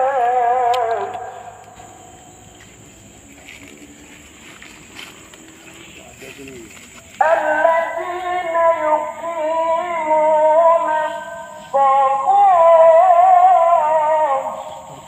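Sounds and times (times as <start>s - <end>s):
music with sung melody: 7.2s - 15.0s.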